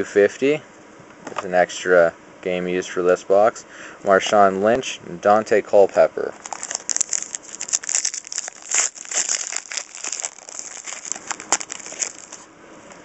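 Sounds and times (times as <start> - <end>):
wrapper tearing and crinkling: 6.4 - 12.5.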